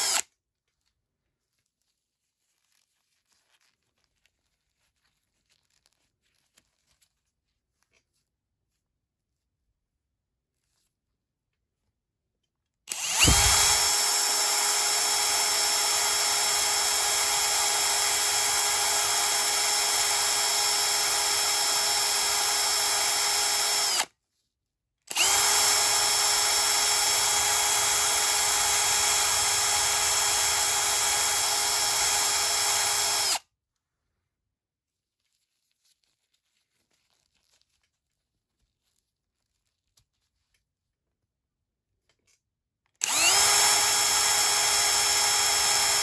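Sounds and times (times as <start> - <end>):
electric drill whining: 0.0 - 0.2, 12.9 - 24.1, 25.1 - 33.4, 43.0 - 46.0.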